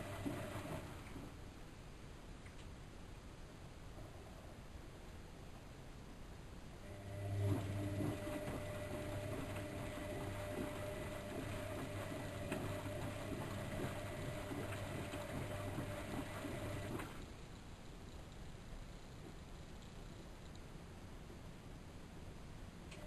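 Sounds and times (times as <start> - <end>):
washing machine motor humming: 0.0 - 1.4, 6.8 - 17.3.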